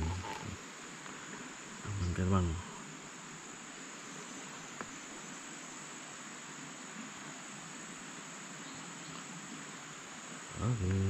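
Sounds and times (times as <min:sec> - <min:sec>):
insects droning: 0:00.0 - 0:11.0
faint click: 0:09.1 - 0:09.3.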